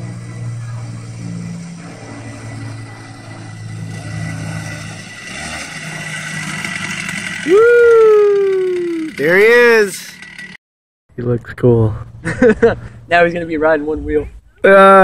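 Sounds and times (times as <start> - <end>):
dirt bike engine running: 0.0 - 10.6
person cheering woo: 7.4 - 9.4.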